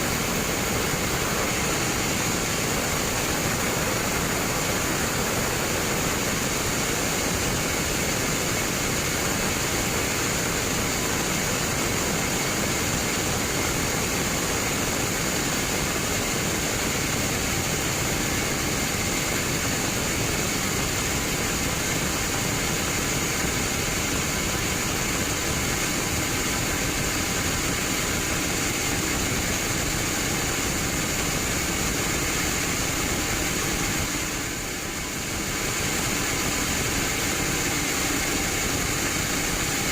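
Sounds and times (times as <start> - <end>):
band sawmill running: 0.0 - 39.9.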